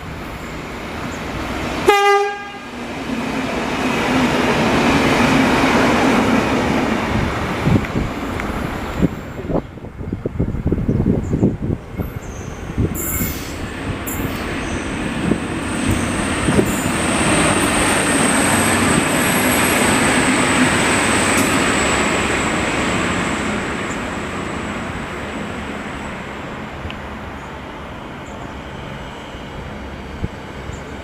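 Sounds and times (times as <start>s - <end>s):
train passing: 0.0s - 31.0s
high-pitched squeal: 12.0s - 22.5s.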